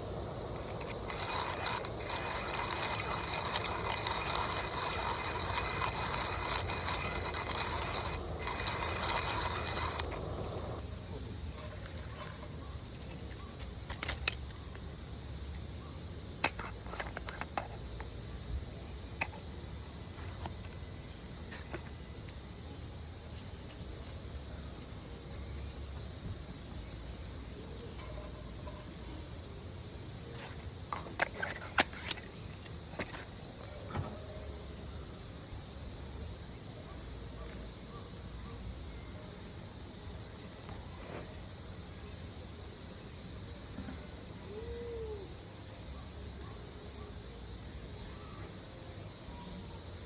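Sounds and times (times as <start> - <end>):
insects chirring: 0.0 - 50.0
sharp clicks and clatters: 0.5 - 10.8, 11.7 - 14.9, 16.4 - 18.1, 30.4 - 33.3.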